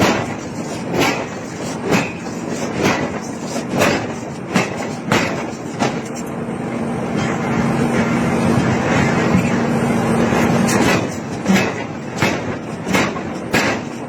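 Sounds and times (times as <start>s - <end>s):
hammer striking hot iron: 0.0s - 6.1s, 10.7s - 14.0s.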